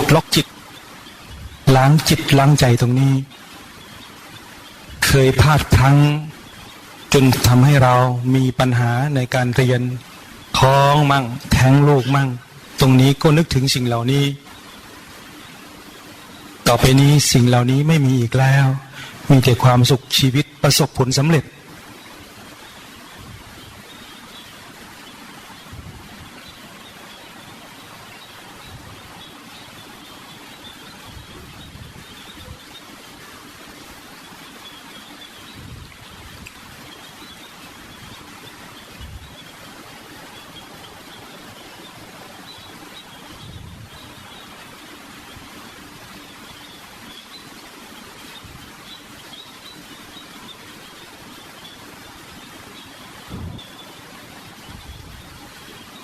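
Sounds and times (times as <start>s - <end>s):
recording hiss: 0.0s - 56.0s
faint low thumps: 53.3s - 53.6s.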